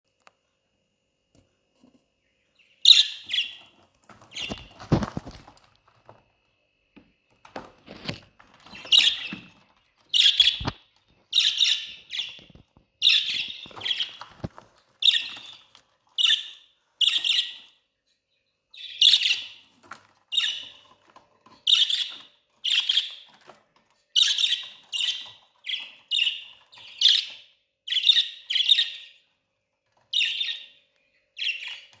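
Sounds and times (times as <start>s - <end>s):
budgerigars chirping: 2.6s - 4.7s, 8.7s - 14.4s, 15.0s - 17.8s, 18.4s - 23.5s, 24.1s - 29.3s, 30.1s - 32.0s.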